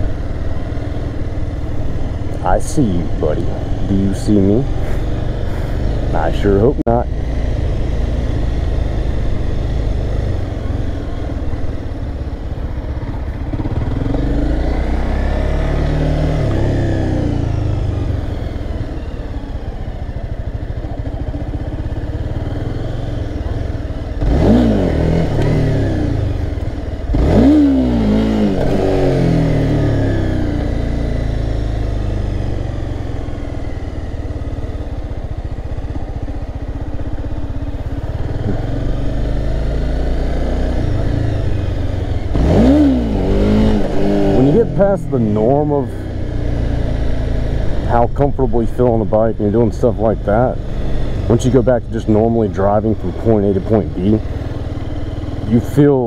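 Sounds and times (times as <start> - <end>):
motorcycle engine running: 0.0 - 56.0
motorcycle engine revving sharply: 38.2 - 45.7.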